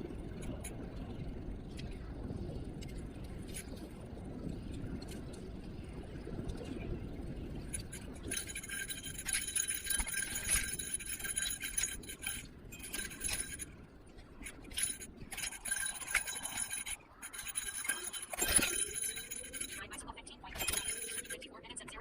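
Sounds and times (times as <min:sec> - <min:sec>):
wind and road noise: 0:00.0 - 0:19.9
metallic jingling and clinking: 0:07.5 - 0:21.5.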